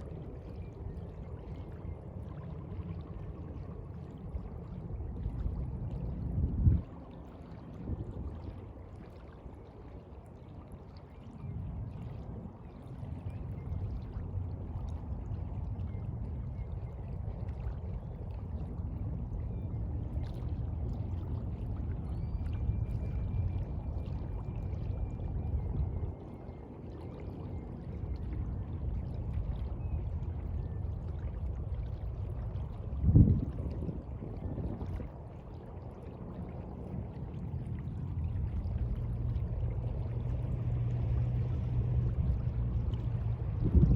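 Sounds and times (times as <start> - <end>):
sea water washing and surging: 0.0 - 43.9.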